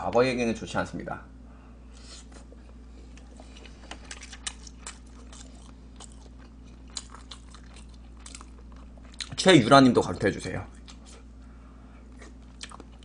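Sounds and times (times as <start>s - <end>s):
low electrical hum: 0.0s - 13.0s
person chewing: 2.0s - 9.4s, 10.7s - 11.4s, 12.0s - 13.0s.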